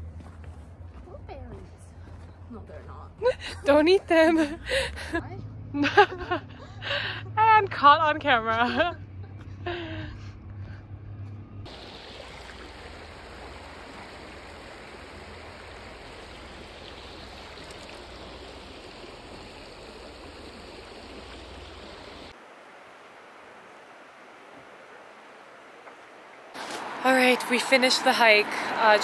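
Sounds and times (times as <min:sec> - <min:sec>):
water rushing: 0:11.7 - 0:29.0.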